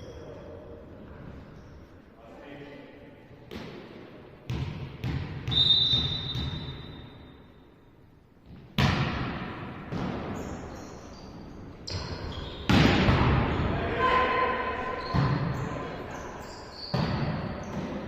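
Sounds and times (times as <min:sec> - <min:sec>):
volleyball hits and bounces: 0:03.5 - 0:06.9, 0:08.5 - 0:10.5, 0:11.9 - 0:13.7, 0:16.9 - 0:18.0.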